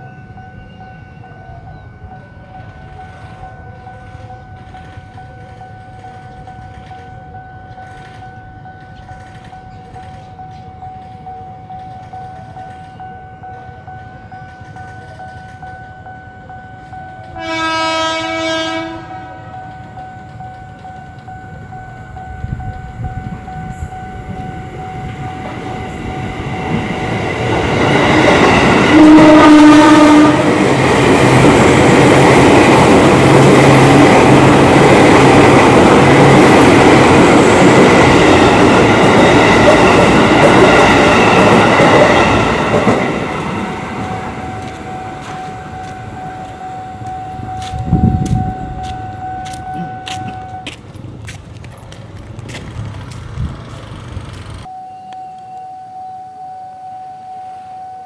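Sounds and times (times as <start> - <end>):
train wheels rushing on rails: 0.0 - 17.5, 18.7 - 54.7
train horn: 17.1 - 20.6, 28.8 - 30.7, 44.4 - 50.7.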